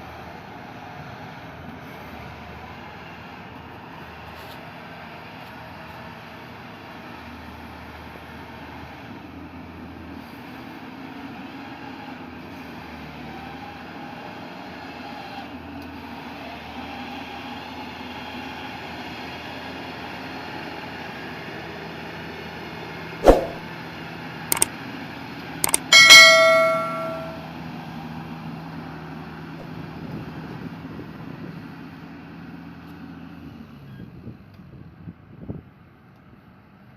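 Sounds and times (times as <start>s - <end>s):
loud metallic clang: 25.6s - 27.4s
sharp knocks: 25.6s - 27.4s.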